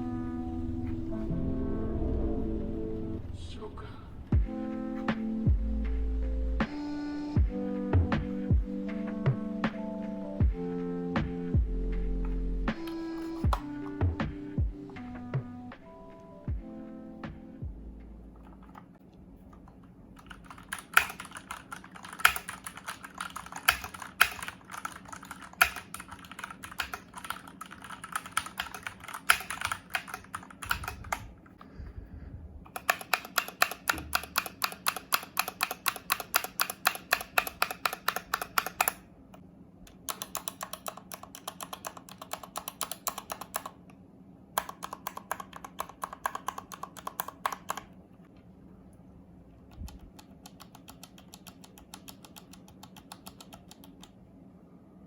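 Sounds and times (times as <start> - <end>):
mechanical keyboard typing: 19.6 - 31.4, 32.7 - 39.0, 39.9 - 43.9, 44.6 - 48.0, 49.6 - 54.2.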